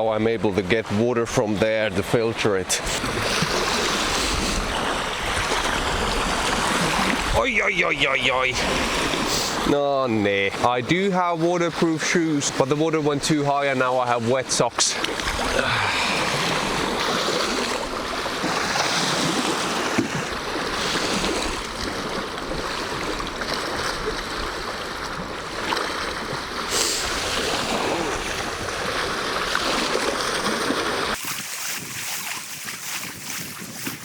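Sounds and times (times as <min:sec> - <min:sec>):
waves washing onto shore: 0:00.0 - 0:34.0
strong wind: 0:02.8 - 0:09.7, 0:15.0 - 0:34.0.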